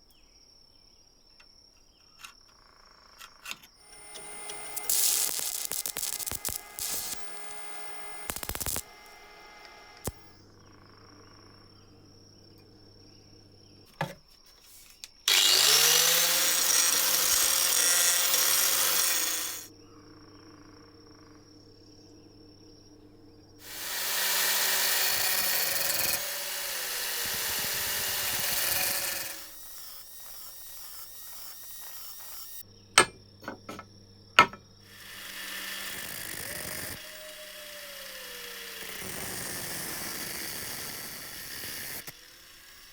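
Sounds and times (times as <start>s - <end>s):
sharp clicks: 2.0s - 10.4s
electric power tool spinning: 3.2s - 10.4s, 13.9s - 19.7s, 23.5s - 33.8s, 34.4s - 42.9s.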